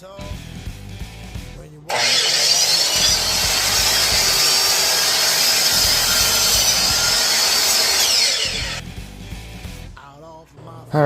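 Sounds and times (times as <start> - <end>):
miter saw cutting wood: 1.9 - 8.8.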